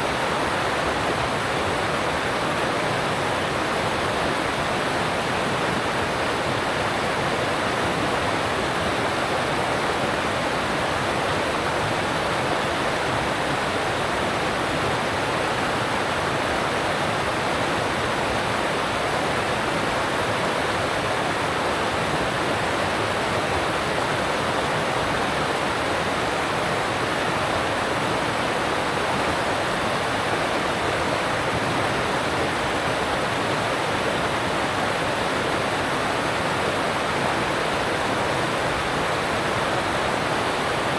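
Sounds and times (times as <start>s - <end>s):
mountain stream rushing: 0.0s - 40.9s.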